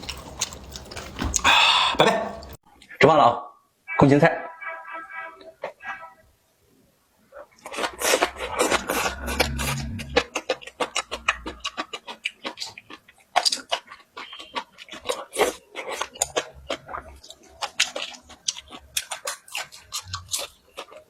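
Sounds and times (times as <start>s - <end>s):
person chewing and crunching: 0.0s - 2.6s, 7.4s - 21.0s.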